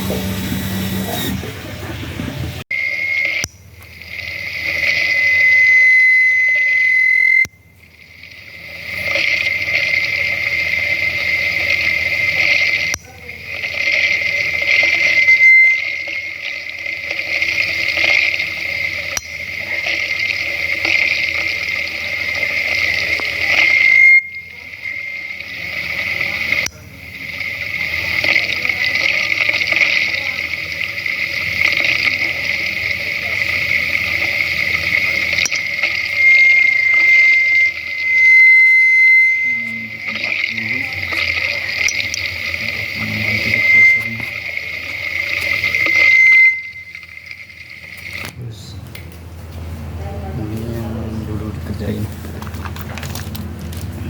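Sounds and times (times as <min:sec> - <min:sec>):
water rushing through pipe: 0:00.0 - 0:48.6
thin high whistle: 0:02.7 - 0:07.8, 0:14.0 - 0:16.8, 0:20.7 - 0:26.8, 0:33.3 - 0:48.3.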